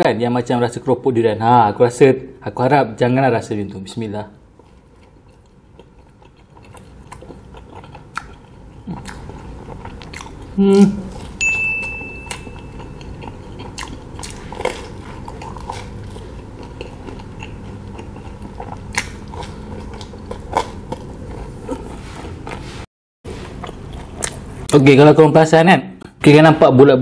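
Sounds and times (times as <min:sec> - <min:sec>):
person chewing pizza: 0:04.5 - 0:24.7
thin high tone: 0:11.4 - 0:13.2.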